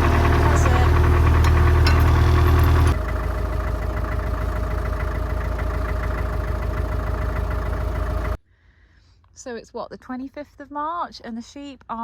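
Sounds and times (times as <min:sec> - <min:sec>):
tractor diesel engine running: 0:00.0 - 0:08.4.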